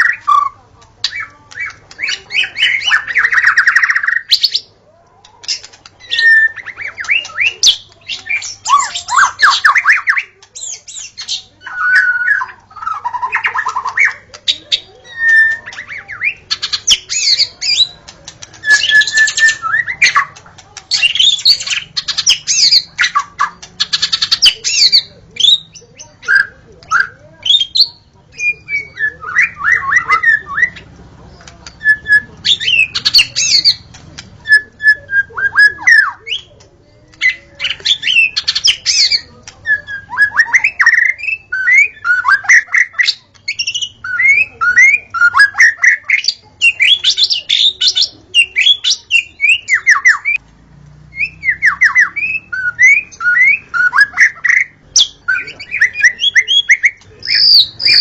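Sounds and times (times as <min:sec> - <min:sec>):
bird singing whistled notes: 0:18.6 - 0:20.2, 0:51.1 - 0:58.0.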